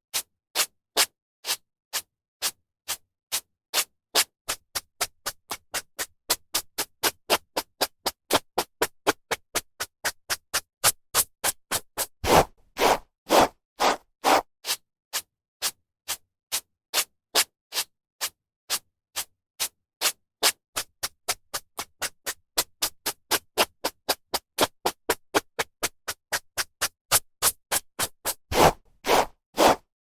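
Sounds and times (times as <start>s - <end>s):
hairbrush swishing through hair: 12.2s - 14.4s, 28.5s - 29.8s.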